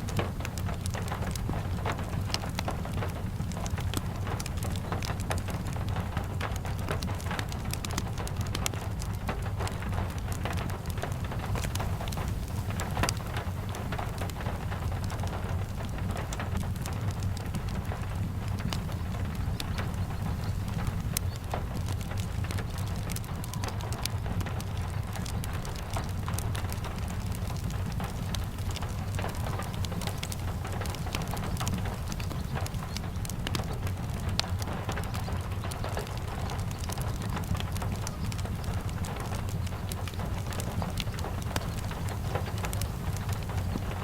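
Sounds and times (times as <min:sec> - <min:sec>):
fireplace crackles and pops: 0:00.0 - 0:44.0
steady rain hiss: 0:00.0 - 0:44.0.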